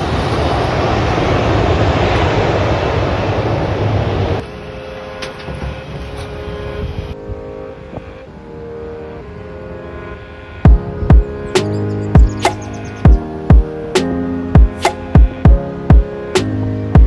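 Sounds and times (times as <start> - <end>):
jet airliner roar: 0.0 - 17.0
wind on microphone: 5.5 - 8.3.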